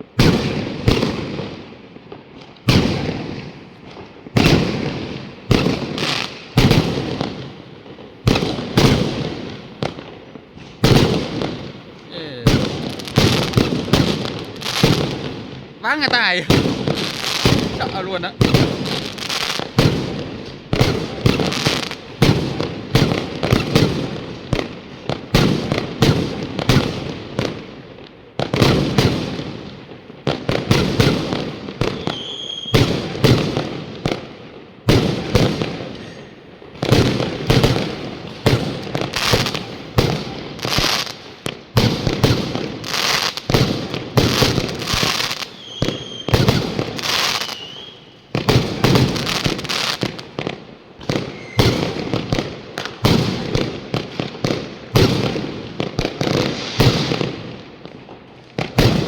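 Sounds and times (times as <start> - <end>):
fireworks bangs: 0.0 - 59.0
high firework whistles: 15.9 - 24.0, 30.8 - 33.4, 35.1 - 41.2, 41.8 - 50.1, 51.0 - 52.2, 56.2 - 57.4.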